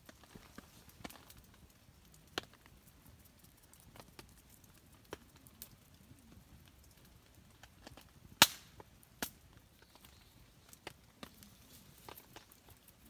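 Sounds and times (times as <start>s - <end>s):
wood fire crackling: 0.0s - 13.0s
loud sharp pop: 8.4s - 8.8s.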